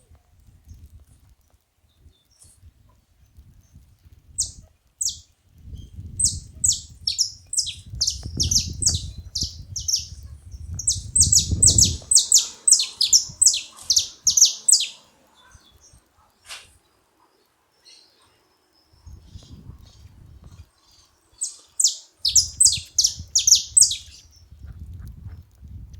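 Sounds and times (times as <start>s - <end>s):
finch calls: 6.2s - 10.2s, 10.8s - 15.7s, 20.9s - 24.2s.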